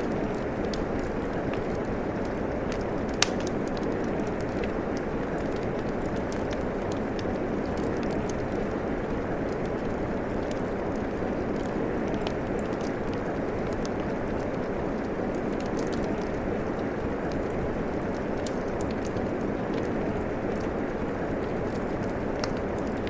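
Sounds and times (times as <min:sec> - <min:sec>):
steady rain: 0:00.0 - 0:23.0
wood fire crackling: 0:00.0 - 0:23.0.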